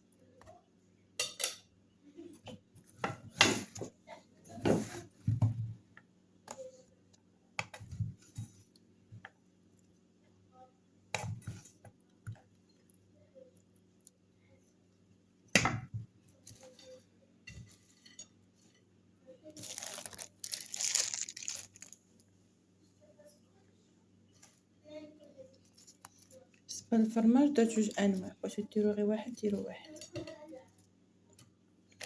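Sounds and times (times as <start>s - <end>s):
faint low hum: 0.0s - 32.0s
utensils and dishes clinking: 1.2s - 1.7s.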